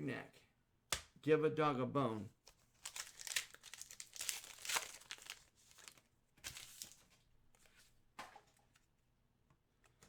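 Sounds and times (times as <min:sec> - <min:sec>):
plastic packaging crinkling: 0:02.8 - 0:07.1.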